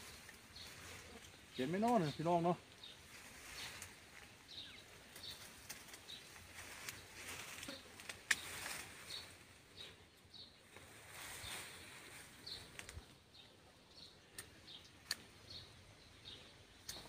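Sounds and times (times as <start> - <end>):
faint rustling: 0.0 - 10.0, 10.6 - 13.2
bird chirping: 0.0 - 17.0.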